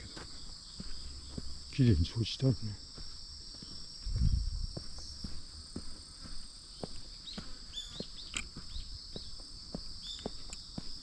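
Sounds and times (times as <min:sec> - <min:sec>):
footsteps walking: 0:00.0 - 0:01.8, 0:02.8 - 0:11.0
insects trilling: 0:00.0 - 0:11.0.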